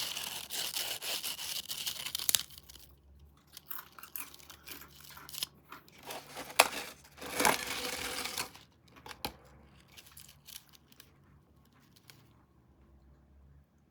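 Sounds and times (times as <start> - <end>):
snack packaging crinkling: 0.0 - 11.1.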